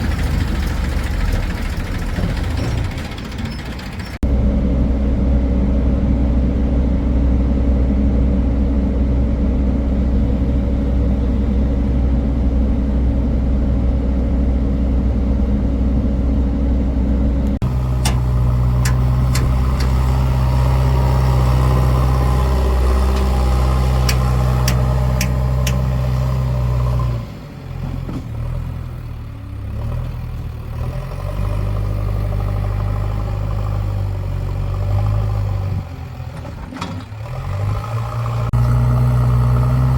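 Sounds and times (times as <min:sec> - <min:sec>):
heavy diesel engine running: 0:00.0 - 0:39.9
sharp clicks: 0:24.0 - 0:25.8.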